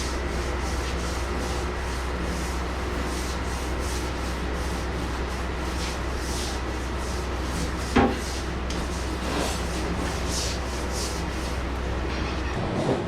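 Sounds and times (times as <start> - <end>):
brush scrubbing wet floor: 0.0 - 11.9
steady low hum: 0.0 - 13.0.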